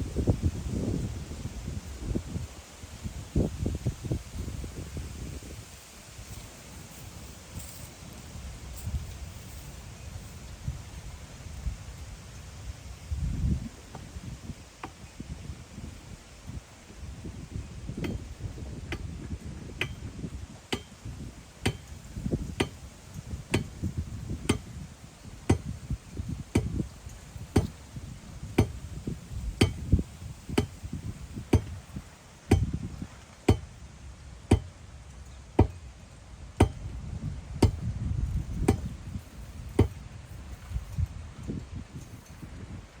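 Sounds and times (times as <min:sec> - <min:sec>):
wind rumbling on microphone: 0:00.0 - 0:43.0
hand tool striking ground: 0:17.9 - 0:24.8, 0:25.4 - 0:27.8, 0:28.5 - 0:31.8, 0:32.5 - 0:33.8, 0:34.4 - 0:34.8, 0:35.6 - 0:35.8, 0:36.6 - 0:36.9, 0:37.6 - 0:41.0.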